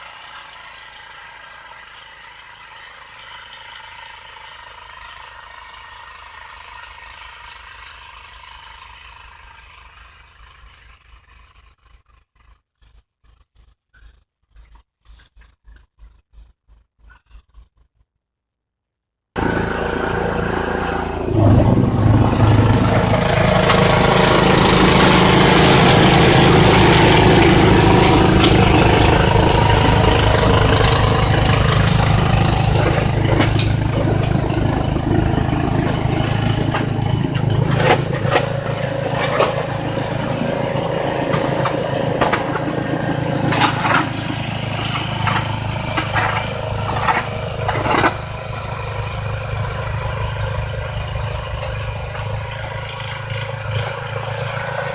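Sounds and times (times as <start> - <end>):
snowblower engine running: 0.0 - 11.0, 19.4 - 54.9
sharp knocks and clatters: 21.3 - 48.5.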